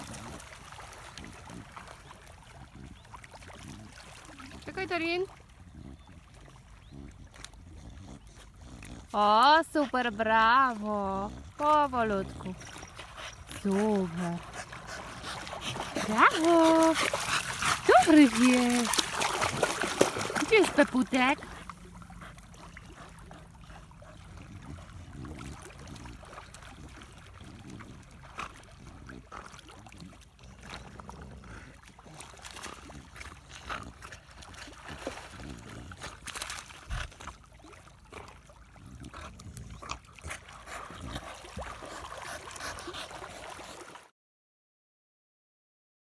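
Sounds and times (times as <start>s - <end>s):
small splashes: 0.0s - 5.6s, 11.9s - 30.8s, 39.9s - 44.1s
water gently lapping: 0.0s - 44.1s.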